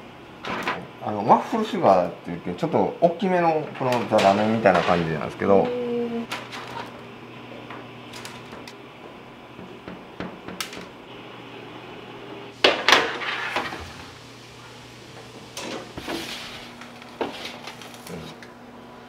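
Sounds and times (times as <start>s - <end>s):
low hum of kitchen equipment: 0.0s - 19.0s
utensils and containers clattering: 3.8s - 5.7s, 15.5s - 18.3s.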